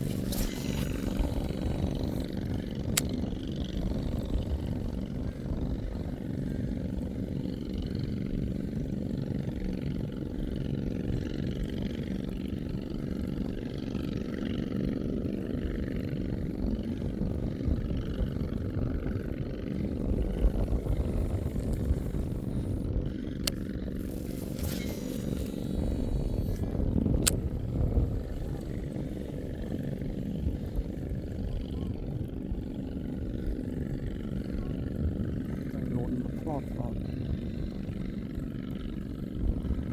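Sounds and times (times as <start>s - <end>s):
small boat engine running: 0.0s - 39.9s
sharp clicks: 27.2s - 27.5s.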